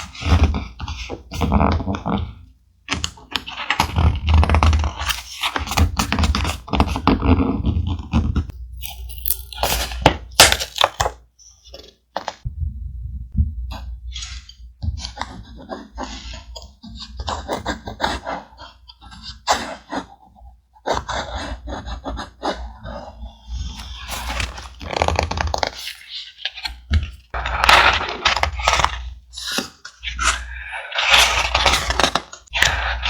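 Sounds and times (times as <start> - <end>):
steady low rumble: 12.5 - 13.7.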